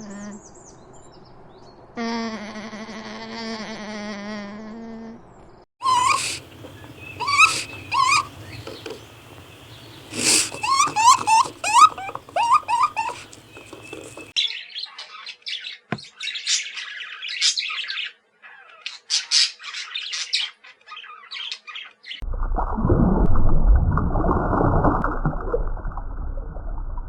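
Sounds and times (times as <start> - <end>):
bird squawking: 5.8 - 14.3
bird chirping and twittering: 5.8 - 22.2.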